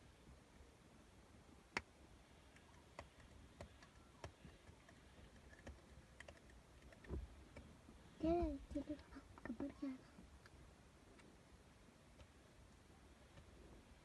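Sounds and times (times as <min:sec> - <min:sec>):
faint clicks and ticks: 0:02.5 - 0:07.7, 0:08.8 - 0:11.4.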